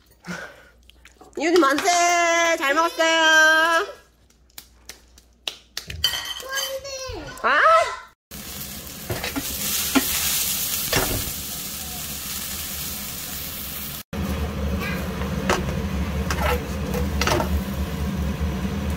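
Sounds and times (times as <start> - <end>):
mushrooms sizzling in oil: 8.3 - 18.9.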